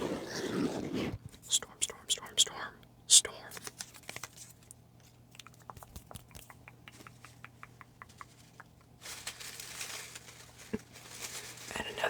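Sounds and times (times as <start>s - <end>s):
mouth clicks: 5.3s - 8.9s.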